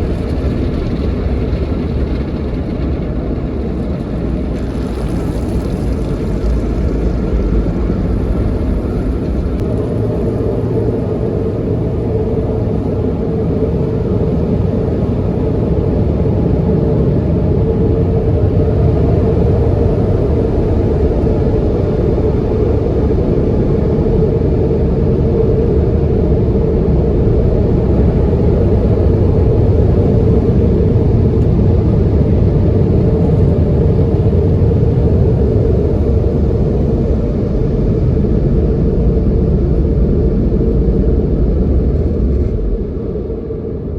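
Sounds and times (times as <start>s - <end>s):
car wash equipment rumbling: 0.0s - 43.9s.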